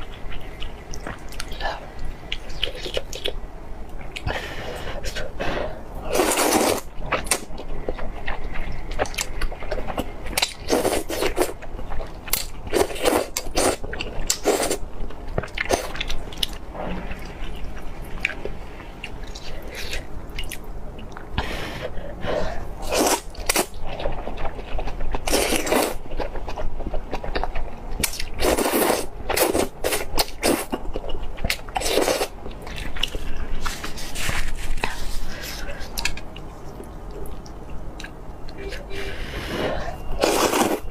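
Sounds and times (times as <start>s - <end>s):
crunchy chewing: 22.8s - 38.6s.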